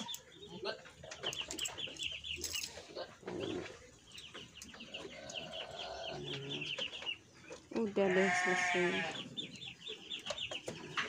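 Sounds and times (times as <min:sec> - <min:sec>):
small birds chirping: 0:00.0 - 0:11.0
halter buckle clicking and rustling: 0:01.2 - 0:02.8.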